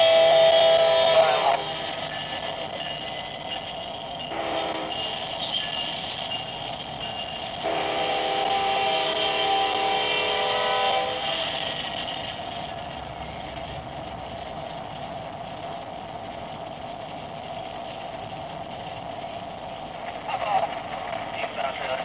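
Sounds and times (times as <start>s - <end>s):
locomotive horn chord: 0.0s - 1.9s, 4.3s - 5.1s, 7.6s - 11.3s
freight train rolling past: 0.0s - 22.0s.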